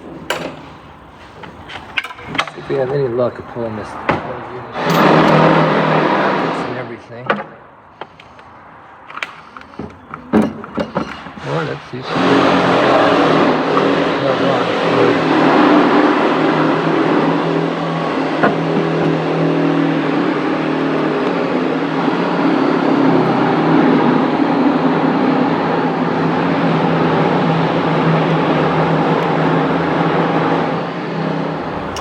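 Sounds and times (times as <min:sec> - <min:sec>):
mechanical hum and rushing: 0:31.5 - 0:32.0.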